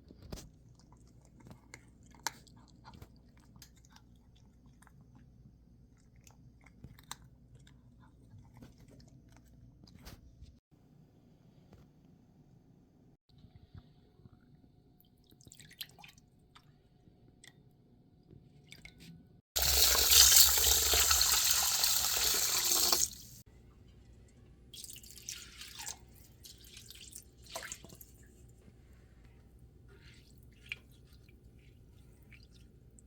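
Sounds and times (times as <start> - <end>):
water running: 19.6 - 23.5, 24.8 - 28.6, 29.3 - 33.0.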